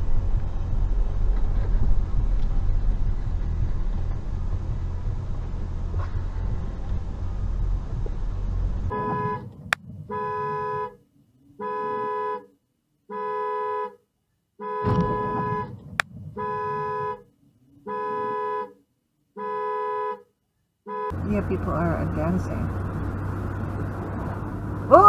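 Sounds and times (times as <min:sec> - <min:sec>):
low vehicle rumble: 0:00.0 - 0:11.6, 0:14.8 - 0:17.9, 0:21.1 - 0:25.0
car horn blasts: 0:08.9 - 0:11.0, 0:11.6 - 0:12.5, 0:13.1 - 0:14.0, 0:14.6 - 0:18.8, 0:19.4 - 0:20.3, 0:20.9 - 0:21.4.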